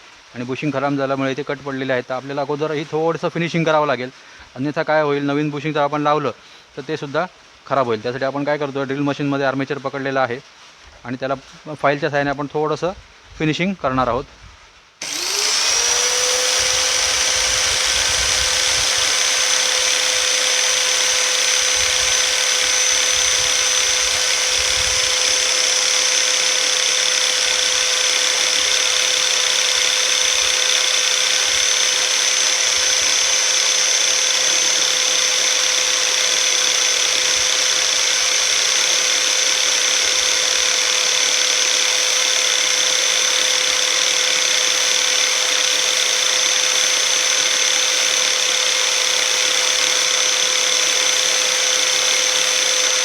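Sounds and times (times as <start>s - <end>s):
electric drill whining: 15.0s - 53.0s
file on spinning shaft: 15.0s - 53.0s.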